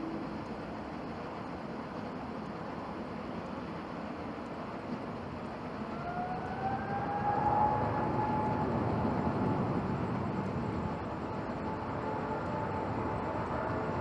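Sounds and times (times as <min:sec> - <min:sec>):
jet engines roaring at takeoff: 0:00.0 - 0:14.0
jet engine whine rising: 0:05.3 - 0:14.0.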